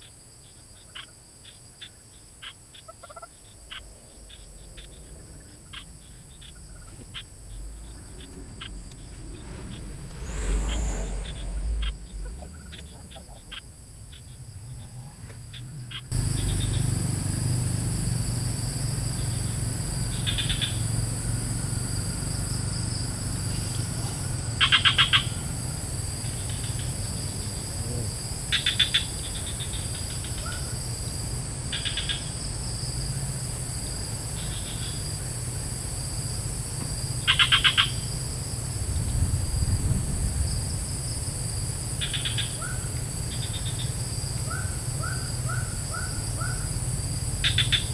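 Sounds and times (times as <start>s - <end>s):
high-pitched insect drone: 0.8s - 47.9s
low steady rumble: 3.3s - 47.9s
rapid trilled call: 16.1s - 33.5s, 37.2s - 38.1s, 42.0s - 47.9s.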